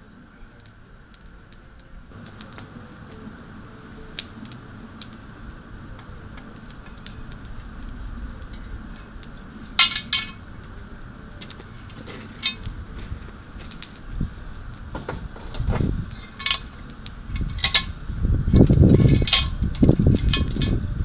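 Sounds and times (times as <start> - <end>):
loud metal clanking: 2.1 - 21.0
metal cookware clinking: 5.9 - 10.8, 11.4 - 13.4, 15.0 - 17.9.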